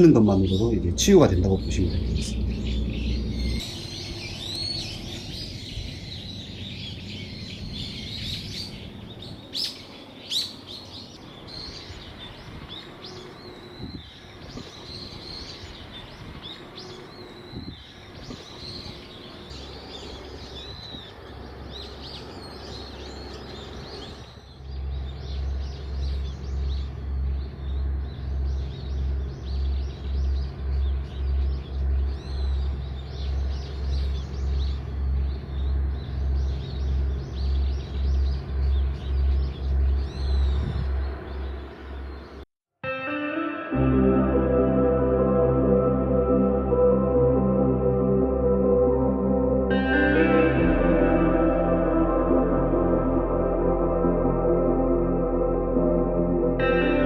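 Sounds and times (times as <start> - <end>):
loud low rhythmic pulsing: 0.0 - 9.3, 11.3 - 42.4, 43.8 - 57.0
songbirds chirping and trilling: 0.0 - 42.4.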